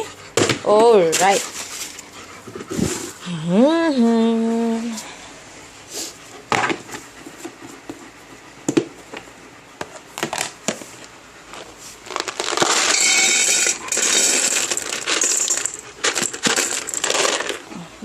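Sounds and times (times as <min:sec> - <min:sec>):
dry kibble pouring into bowl: 0:12.1 - 0:17.6.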